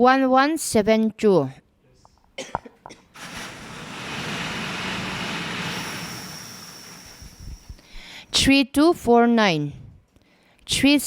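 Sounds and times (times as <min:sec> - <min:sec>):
lottery machine rushing noise: 0:03.2 - 0:08.0.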